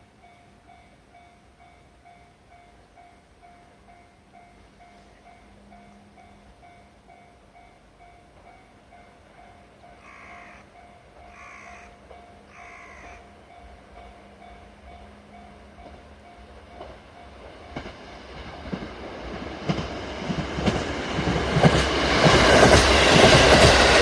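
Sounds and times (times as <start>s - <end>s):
level crossing warning bell: 0.0s - 10.0s, 10.6s - 18.8s
train rumble: 0.0s - 24.0s
crow cawing: 9.9s - 13.3s.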